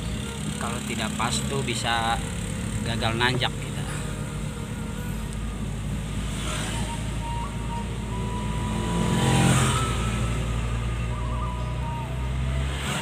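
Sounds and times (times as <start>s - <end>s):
car engine working uphill: 0.0s - 13.0s
road noise: 0.0s - 13.0s.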